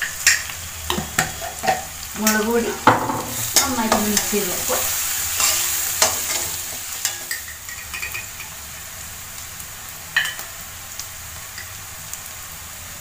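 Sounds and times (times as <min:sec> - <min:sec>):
vegetables sizzling in oil: 0:00.0 - 0:13.0
metal spatula scraping wok: 0:00.2 - 0:08.5.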